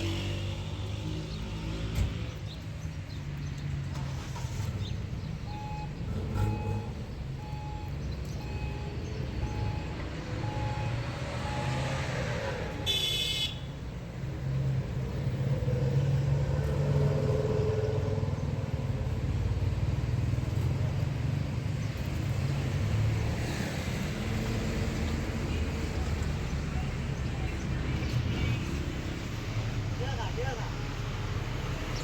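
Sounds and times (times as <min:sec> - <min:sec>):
short electronic beeps: 0:05.5 - 0:11.8
car horn toot: 0:12.8 - 0:13.8.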